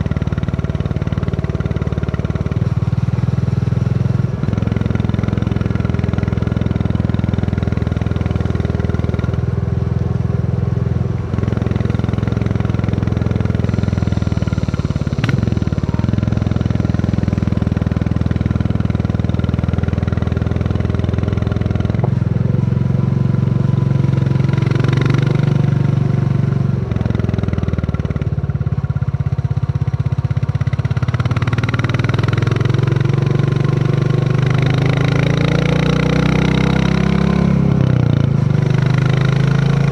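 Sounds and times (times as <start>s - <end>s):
motorcycle engine thumping: 0.0s - 25.4s.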